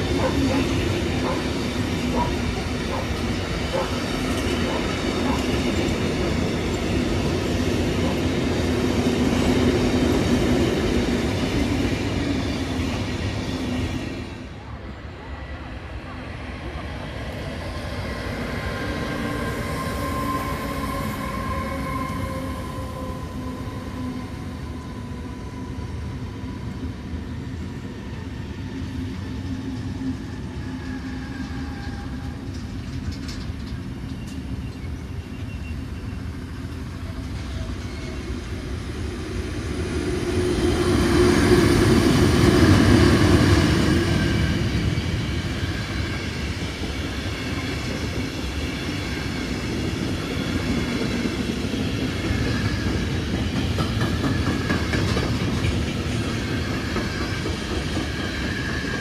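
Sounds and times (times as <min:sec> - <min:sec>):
train wheels rumbling and clattering: 0:00.0 - 0:14.4, 0:26.6 - 0:59.0
electric locomotive whine: 0:00.0 - 0:59.0.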